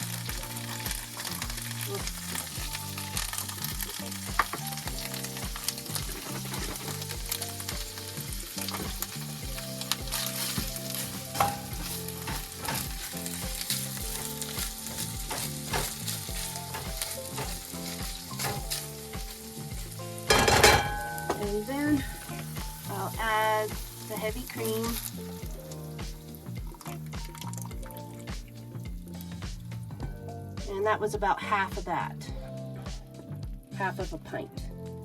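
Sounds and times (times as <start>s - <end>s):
utensil clicking against pan: 0.0s - 21.6s
food sizzling in a frying pan: 0.0s - 29.8s
soft background beat: 0.0s - 35.0s.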